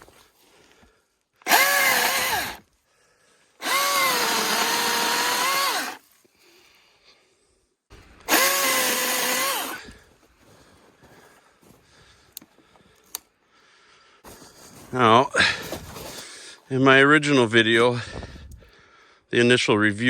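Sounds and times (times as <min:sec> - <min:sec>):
electric chainsaw running: 0:01.4 - 0:02.6, 0:03.6 - 0:06.0, 0:08.0 - 0:10.0.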